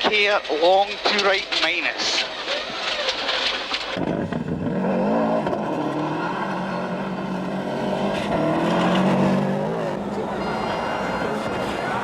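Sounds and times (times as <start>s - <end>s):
rally car engine at speed: 3.9s - 12.0s.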